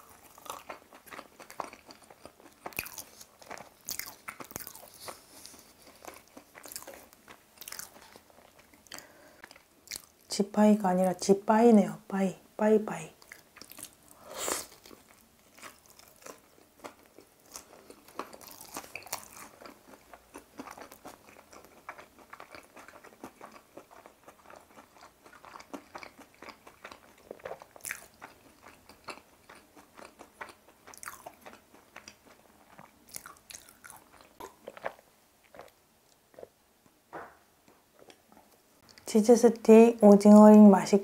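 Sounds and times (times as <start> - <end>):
loud crunch of bite: 0.0 - 8.2, 13.3 - 35.8
chewing with small crackles: 0.0 - 10.3, 13.1 - 37.0, 37.6 - 39.1.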